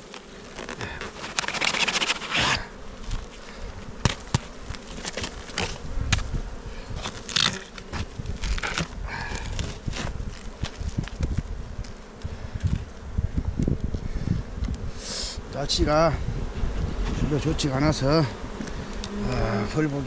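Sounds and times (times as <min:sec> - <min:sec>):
honeybees buzzing: 0:00.0 - 0:20.0
wooden hive frames knocking: 0:03.2 - 0:11.5.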